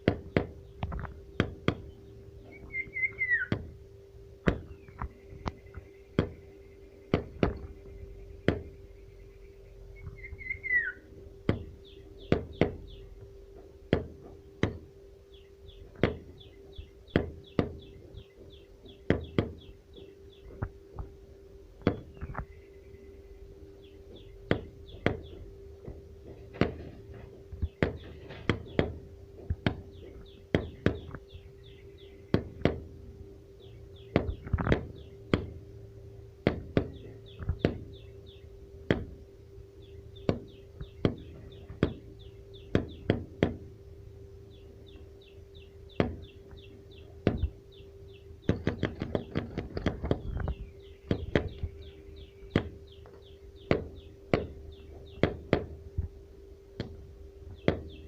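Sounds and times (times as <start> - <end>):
sharp knocks: 0.0 - 1.9, 6.2 - 6.5, 7.1 - 7.7, 8.4 - 8.8, 11.5 - 13.0, 13.6 - 14.9, 15.9 - 16.4, 17.1 - 19.7, 24.1 - 31.2, 34.1 - 35.6, 36.4 - 38.0, 38.9 - 39.2, 40.2 - 42.1, 42.7 - 43.7, 45.9 - 46.3, 47.2 - 47.6, 48.4 - 51.7, 52.5 - 52.9, 53.7 - 55.8, 57.6 - 58.0
bird chirping in trills: 0.0 - 13.7, 14.3 - 56.1, 57.4 - 58.0
steady low hum: 0.0 - 58.0.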